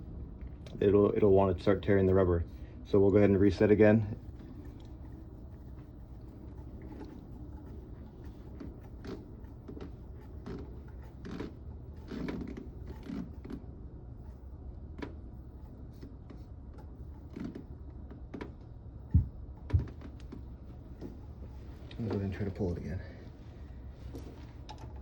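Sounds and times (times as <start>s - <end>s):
steady low hum: 0.0s - 25.0s
low knocks: 19.1s - 20.0s.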